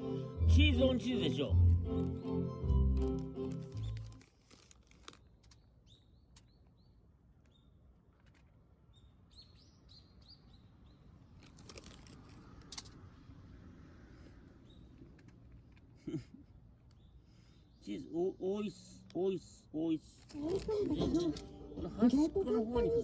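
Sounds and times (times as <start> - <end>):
soft clicks and rustles: 3.0 - 5.7, 7.4 - 8.6, 14.2 - 16.0
small bird chirping: 5.5 - 7.8, 8.9 - 11.1.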